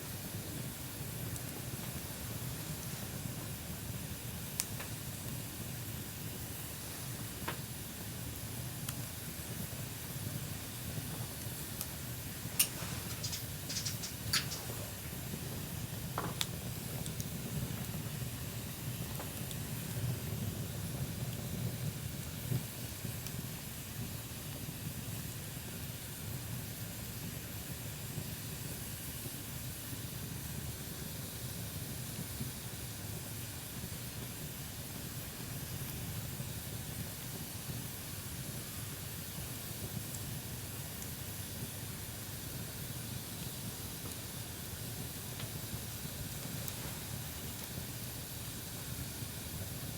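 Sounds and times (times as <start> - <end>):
bonfire hissing and rumbling: 0.0 - 49.9
fire popping: 0.1 - 23.5, 35.3 - 49.9.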